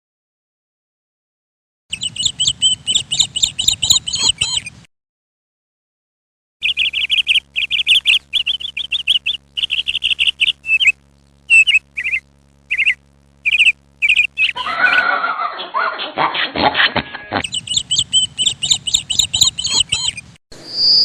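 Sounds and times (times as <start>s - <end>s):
bird chirping: 1.9s - 4.8s, 6.6s - 15.0s, 17.4s - 21.0s.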